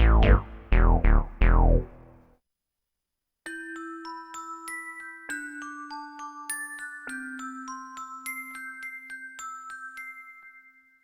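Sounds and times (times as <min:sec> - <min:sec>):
held low synthesizer note: 0:00.0 - 0:02.1.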